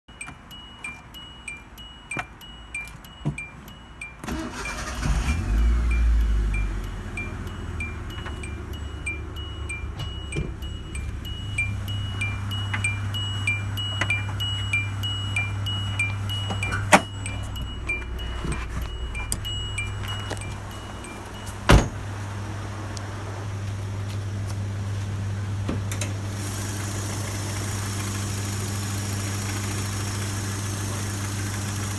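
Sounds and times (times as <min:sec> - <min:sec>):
car warning chime pinging: 0:00.0 - 0:22.0, 0:26.5 - 0:31.9
car engine cranking and starting: 0:00.1 - 0:22.0, 0:25.9 - 0:31.9
car engine low rumble: 0:00.1 - 0:31.9
steady low hum: 0:05.0 - 0:21.5.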